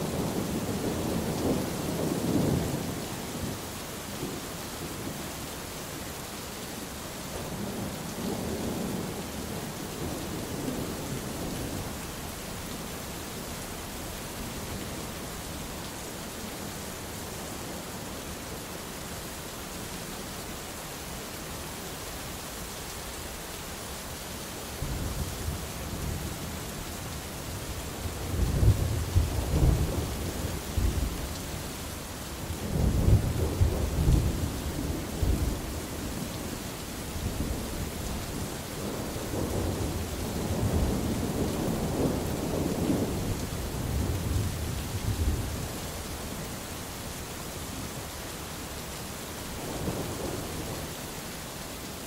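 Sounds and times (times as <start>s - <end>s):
heavy rain hissing: 0.0s - 52.0s
thunder rumbling: 28.1s - 31.2s.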